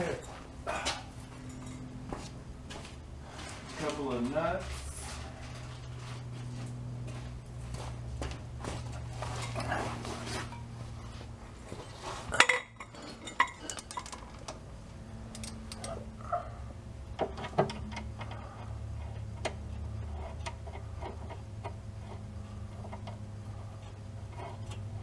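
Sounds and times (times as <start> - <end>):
hand tools clinking on metal: 0.0 - 2.0, 11.8 - 14.6
steady low hum: 0.0 - 25.0.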